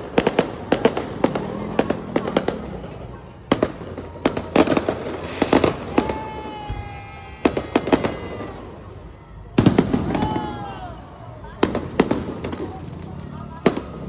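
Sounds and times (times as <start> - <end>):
fireworks cracking and banging: 0.0 - 14.0
falling firework whistle: 5.2 - 11.0.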